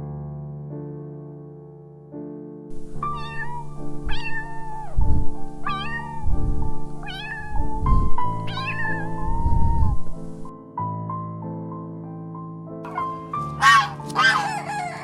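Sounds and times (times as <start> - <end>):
piano background music: 0.0 - 15.0
cat meowing: 2.8 - 10.1, 12.9 - 15.0.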